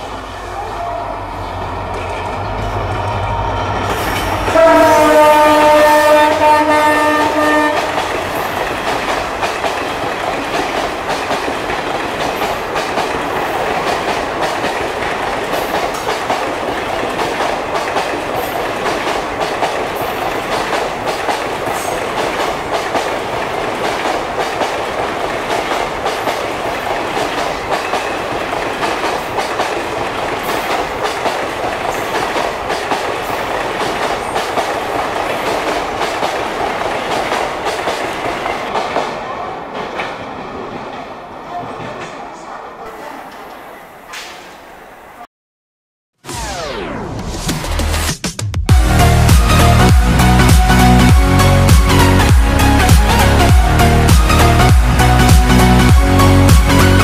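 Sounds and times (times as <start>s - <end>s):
rush of wheels on rail: 0.0s - 44.6s.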